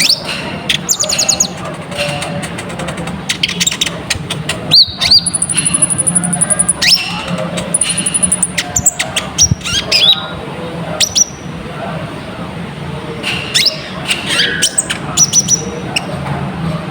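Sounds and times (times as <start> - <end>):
bird chirping and trilling: 0.0 - 2.1, 3.3 - 10.4, 13.5 - 16.2.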